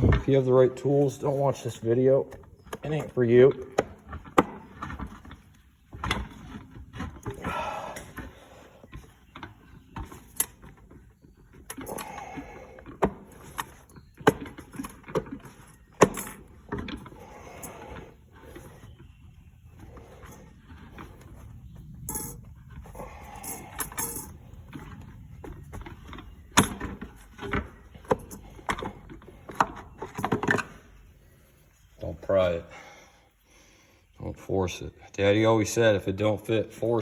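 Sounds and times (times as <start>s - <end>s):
metal parts knocking and clinking: 12.8s - 18.0s, 22.0s - 30.8s
metal parts scraping: 19.9s - 29.4s.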